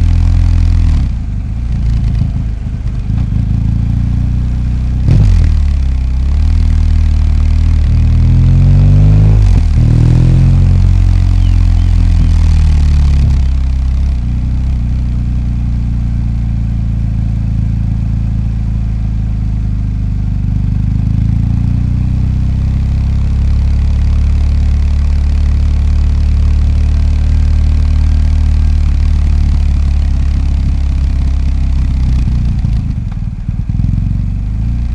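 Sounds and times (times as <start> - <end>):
motorcycle engine revving: 3.1 - 15.3.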